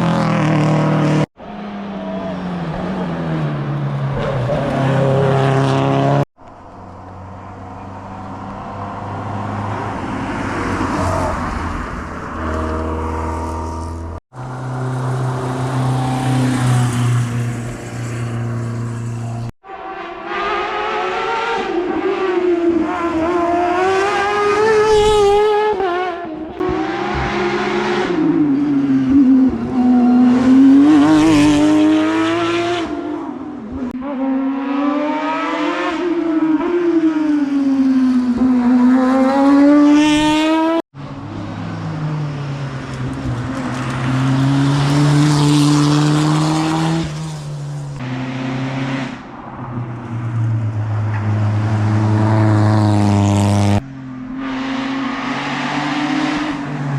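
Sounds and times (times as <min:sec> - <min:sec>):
rally car engines revving: 0:00.0 - 0:06.3, 0:07.2 - 0:56.9.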